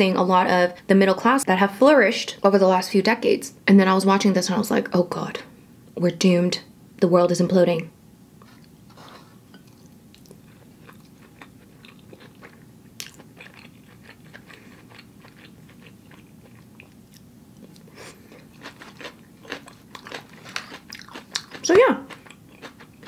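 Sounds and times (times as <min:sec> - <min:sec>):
person chewing food: 0:08.4 - 0:23.0.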